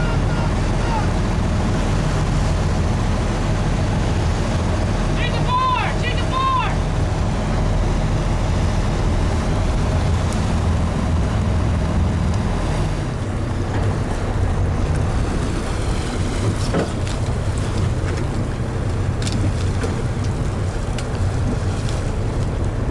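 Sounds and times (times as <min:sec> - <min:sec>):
boat engine humming: 0:00.0 - 0:22.9
rushing water: 0:00.0 - 0:22.9
wind: 0:00.0 - 0:22.9.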